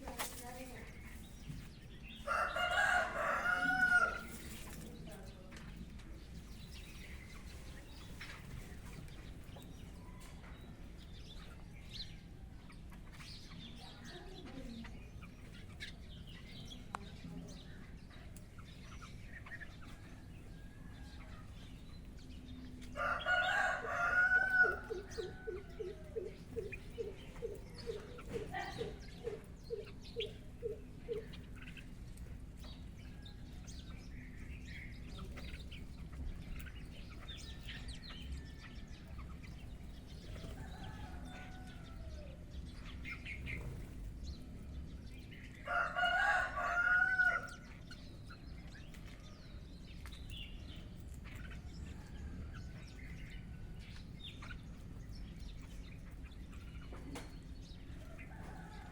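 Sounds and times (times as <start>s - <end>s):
small birds chirping: 0.0s - 58.9s
rooster crowing: 2.2s - 4.4s, 23.0s - 27.2s, 40.5s - 42.4s, 45.6s - 47.6s.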